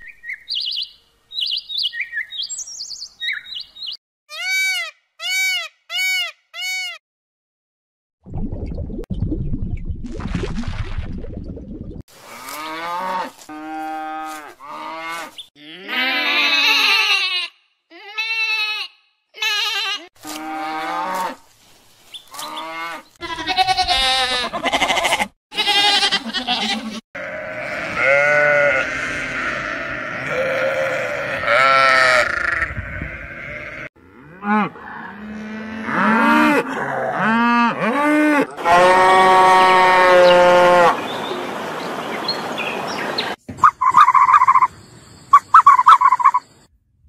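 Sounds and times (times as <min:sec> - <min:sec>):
cow mooing: 0:12.3 - 0:16.6, 0:26.6 - 0:41.0
sheep and lambs bleating: 0:12.3 - 0:21.4, 0:22.3 - 0:33.9, 0:35.1 - 0:41.0.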